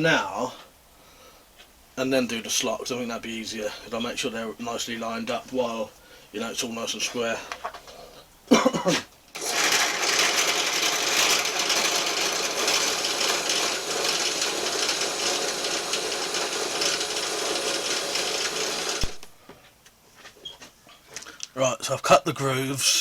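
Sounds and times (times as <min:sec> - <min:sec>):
electric drill drilling metal: 0:09.4 - 0:19.4.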